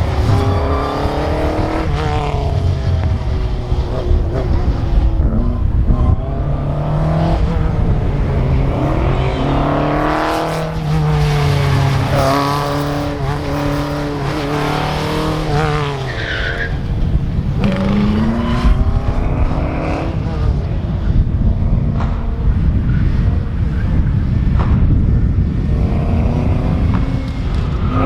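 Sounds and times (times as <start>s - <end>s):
tires squealing: 0.0s - 2.4s, 3.0s - 18.8s
race car engine revving: 0.0s - 23.8s.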